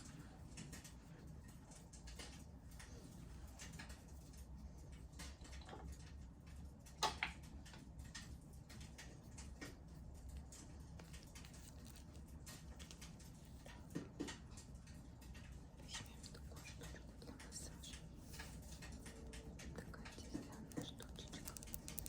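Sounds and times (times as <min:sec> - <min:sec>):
wood fire crackling: 0:17.8 - 0:22.0.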